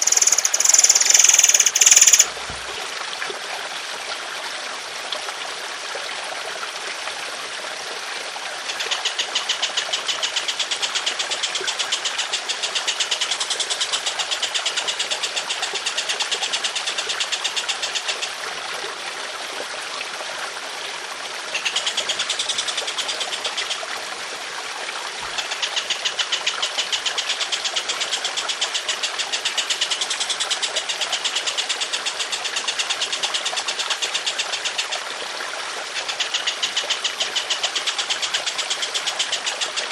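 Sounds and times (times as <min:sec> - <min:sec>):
songbird harsh rattling trills: 0:00.0 - 0:02.4
running water trickling: 0:00.0 - 0:39.9.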